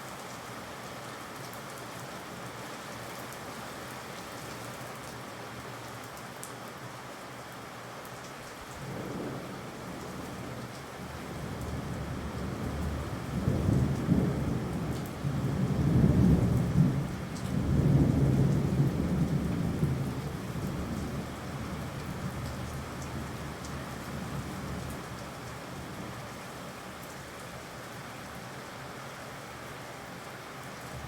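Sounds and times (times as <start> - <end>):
steady rain: 0.0 - 31.0
rolling thunder rumble: 11.0 - 25.1.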